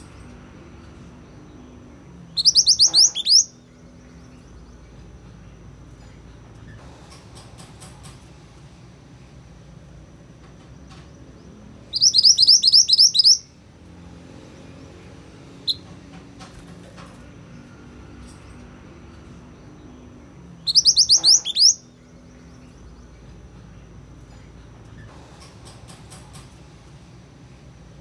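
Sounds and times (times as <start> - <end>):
songbird chirping: 0.0 - 6.8, 10.2 - 25.1.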